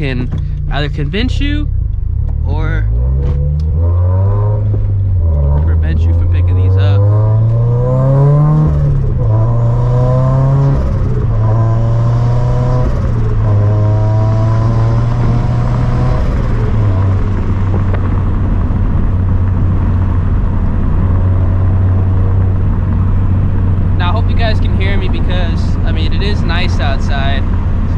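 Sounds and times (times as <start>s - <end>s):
car engine accelerating through gears: 0.0s - 27.9s.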